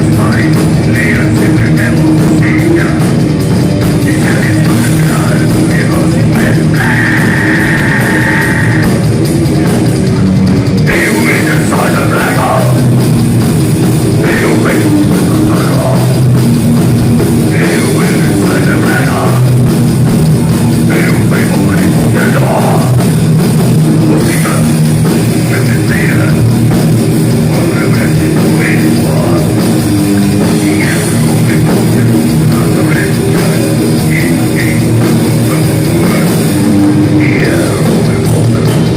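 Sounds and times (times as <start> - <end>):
distorted electric guitars: 0.0 - 38.9
drum kit: 0.0 - 38.9.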